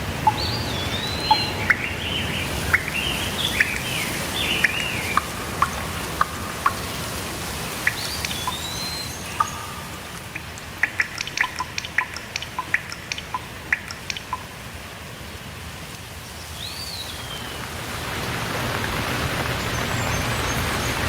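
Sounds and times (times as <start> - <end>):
birds chirping: 0.0 - 14.5
water drops plinking: 0.0 - 14.6
steady rain: 0.0 - 21.0
rising bird call: 0.2 - 7.1.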